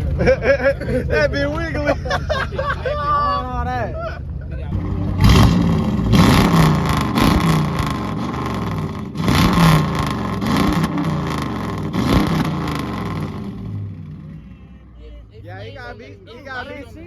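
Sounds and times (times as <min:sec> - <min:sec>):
car engine revving: 0:02.9 - 0:15.0
sharp exhaust cracks: 0:04.7 - 0:14.5.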